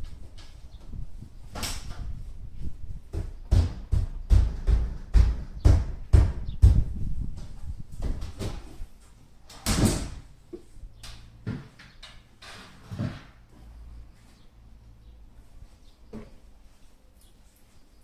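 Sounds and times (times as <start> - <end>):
sharp knocks: 3.1 - 6.9.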